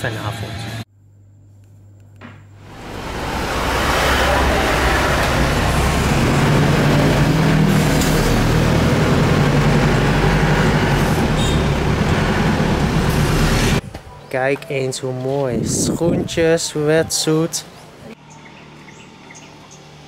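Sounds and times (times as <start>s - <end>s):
road and engine noise in van: 2.6s - 14.2s, 15.8s - 20.0s.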